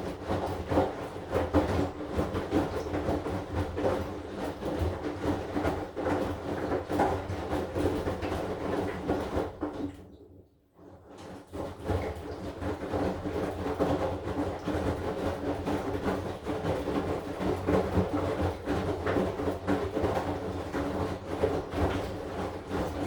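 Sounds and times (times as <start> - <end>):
washing machine motor hum: 0.0 - 9.9, 11.0 - 23.0
laundry tumbling and sloshing: 11.1 - 23.0.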